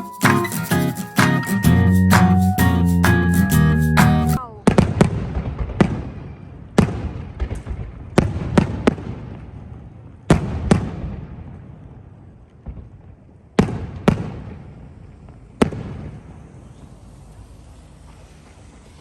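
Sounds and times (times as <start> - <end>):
fireworks exploding: 4.6 - 9.4, 12.6 - 19.0.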